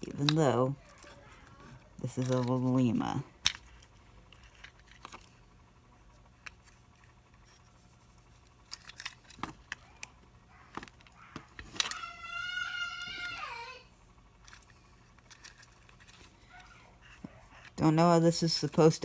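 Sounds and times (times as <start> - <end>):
small parts clicking and scraping: 0.0 - 12.2, 14.4 - 19.0
high wavering pitched cry: 11.9 - 13.8.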